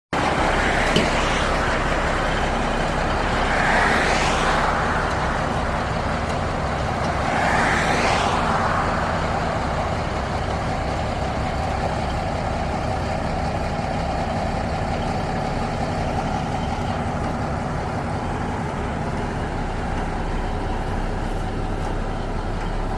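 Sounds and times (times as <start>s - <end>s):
diesel truck engine running: 0.1s - 22.9s
rushes of noise: 0.2s - 12.0s.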